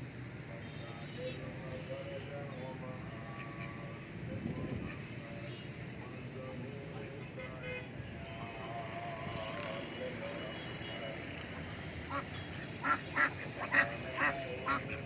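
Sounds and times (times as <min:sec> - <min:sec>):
ducks quacking: 0:12.0 - 0:15.0.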